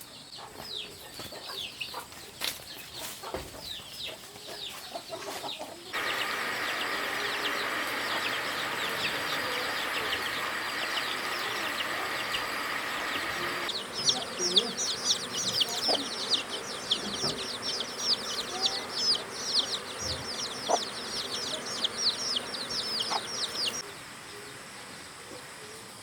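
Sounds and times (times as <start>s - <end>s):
chickens peeping: 0.0s - 25.9s
steady high hum: 6.0s - 25.7s.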